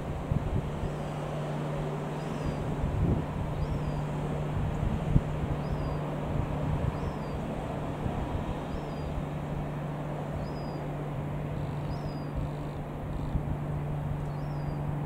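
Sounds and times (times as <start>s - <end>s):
rumbling outdoor noise: 0.0s - 15.0s
steady low drone: 0.0s - 15.0s
small bird chirping: 2.2s - 2.6s, 3.6s - 4.0s, 5.6s - 6.0s, 6.9s - 7.4s, 8.7s - 9.1s, 10.4s - 10.8s, 11.6s - 13.4s, 14.3s - 14.8s.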